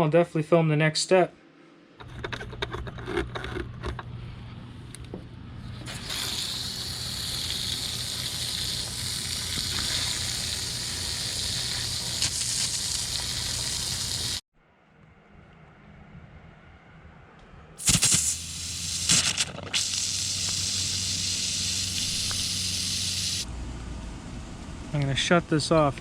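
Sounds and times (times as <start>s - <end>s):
steady low hum: 1.3s - 14.4s
water running from tap: 5.9s - 14.4s.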